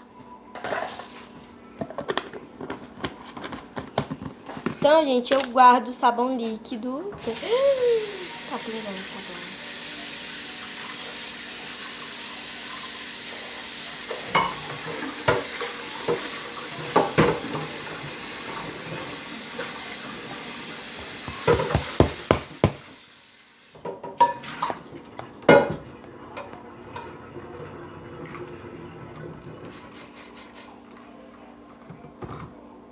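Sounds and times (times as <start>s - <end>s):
dishes clinking and knocking: 14.1s - 17.8s, 21.2s - 22.8s, 23.8s - 27.2s
tap running into sink: 14.1s - 23.0s.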